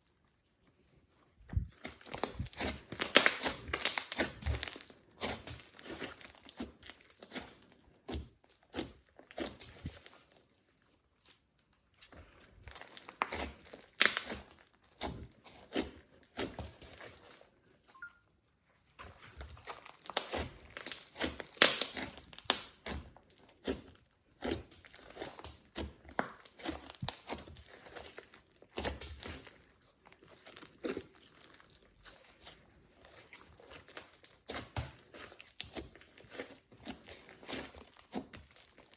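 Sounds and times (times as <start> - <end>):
slime crackling and popping: 1.7 - 7.7, 12.6 - 17.1, 19.4 - 23.8, 24.4 - 38.9.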